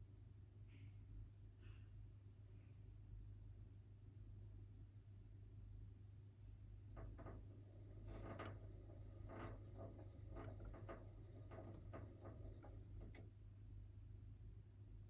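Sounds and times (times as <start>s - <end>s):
faint ticks and clicks: 6.8s - 13.3s
washing machine low hum: 6.8s - 13.4s.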